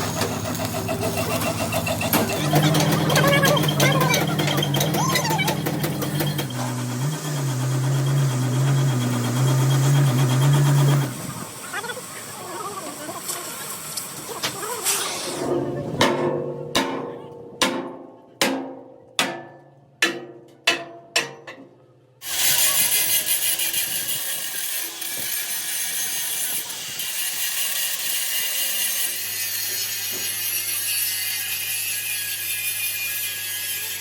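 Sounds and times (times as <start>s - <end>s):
power grinder grinding steel: 0.0s - 15.4s, 22.2s - 34.0s
hammer striking steel plate: 16.0s - 21.7s.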